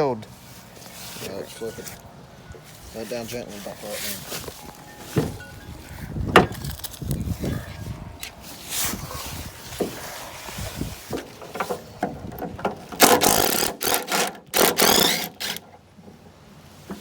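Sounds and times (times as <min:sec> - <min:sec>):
metal scraping and rattling: 0:02.6 - 0:16.2
metal parts clanking: 0:06.3 - 0:07.3, 0:11.4 - 0:15.7.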